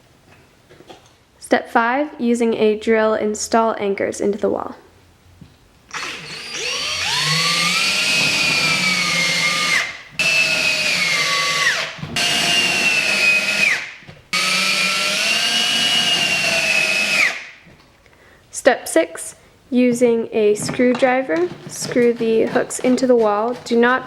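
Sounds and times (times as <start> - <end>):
electric drill whining: 5.9 - 17.5.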